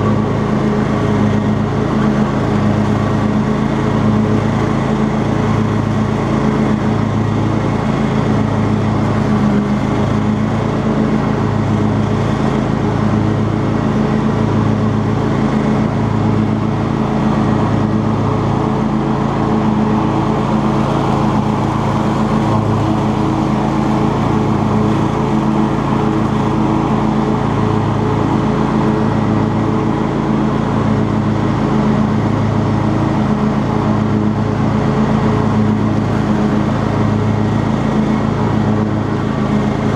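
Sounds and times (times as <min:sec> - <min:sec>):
riding lawn mower engine running: 0:00.0 - 0:39.9.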